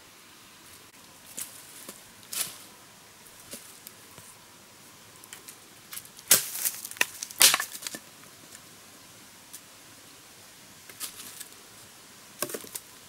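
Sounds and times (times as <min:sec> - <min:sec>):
dry wood cracking and snapping: 0:05.2 - 0:08.1.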